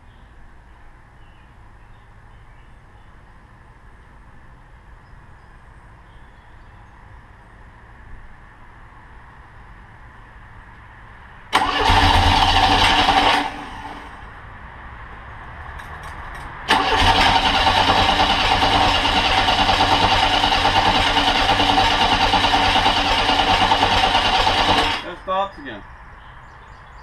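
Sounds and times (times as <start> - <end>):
trike engine running loud: 11.5 - 14.2, 16.7 - 25.2.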